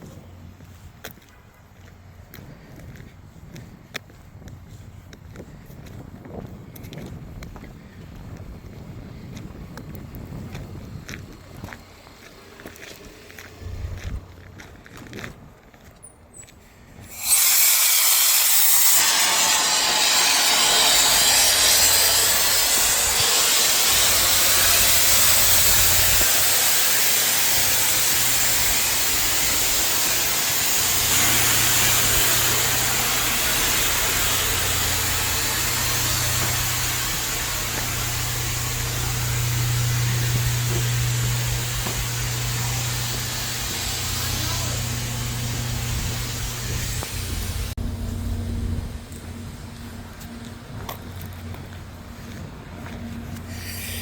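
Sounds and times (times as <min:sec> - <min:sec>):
low hum: 0:08.0 - 0:15.7, 0:27.4 - 0:54.0
rushing air hiss: 0:17.0 - 0:47.8, 0:53.4 - 0:54.0.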